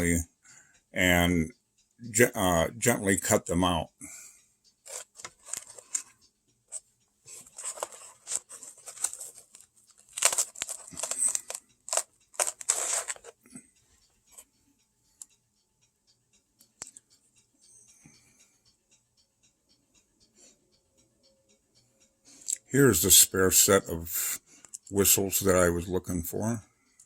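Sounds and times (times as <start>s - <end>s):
rustling and crinkling wrapping: 4.9s - 6.0s, 7.3s - 13.4s.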